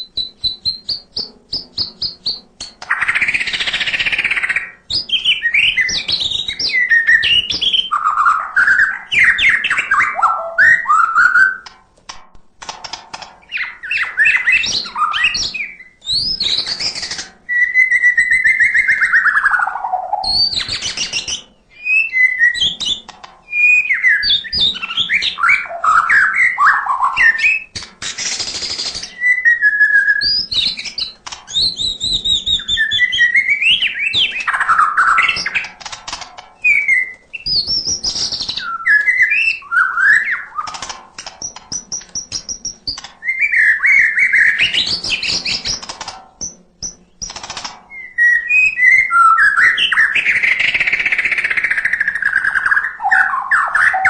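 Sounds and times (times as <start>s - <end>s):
dry clicking rattles: 0.0s - 4.1s, 11.6s - 17.4s, 22.5s - 25.3s, 30.3s - 33.0s, 34.0s - 38.7s, 40.5s - 43.7s, 44.4s - 48.3s
bird singing whistled phrases: 0.0s - 11.6s, 13.5s - 35.7s, 36.6s - 40.8s, 41.8s - 45.8s, 47.9s - 54.0s.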